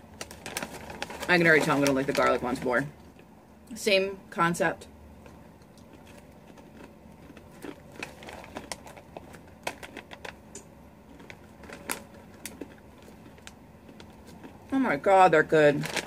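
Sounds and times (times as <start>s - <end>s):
crunchy chip being chewed: 5.2s - 14.7s.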